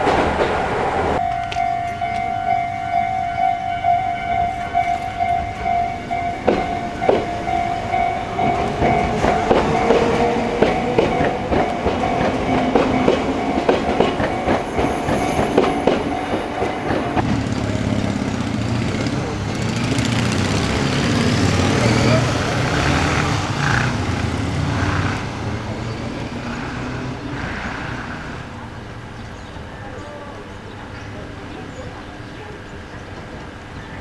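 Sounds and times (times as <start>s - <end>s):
wheels clacking over rail joints: 0.0s - 2.6s, 3.4s - 29.7s
electric train motor hum rising: 17.2s - 28.2s.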